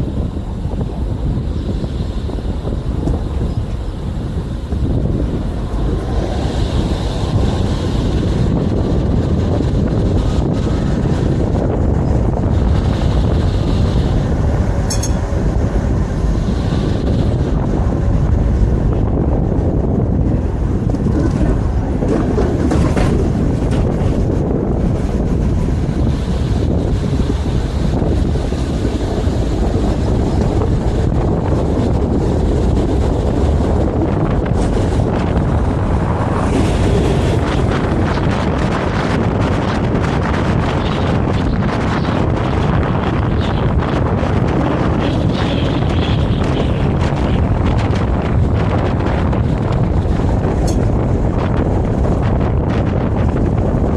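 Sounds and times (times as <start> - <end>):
tram rumbling on track: 0.0 - 53.9
wind buffeting microphone: 0.0 - 53.9
sharp high click or squeak: 14.9 - 15.2.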